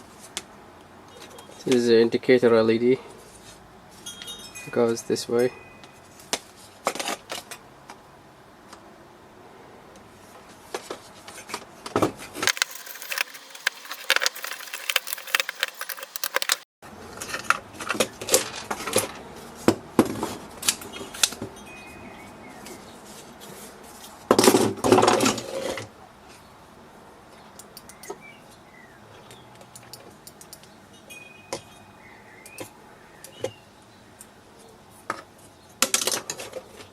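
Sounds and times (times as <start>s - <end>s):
coffee machine parts clicking and rattling: 12.4s - 16.7s
loud clatter: 12.4s - 16.7s.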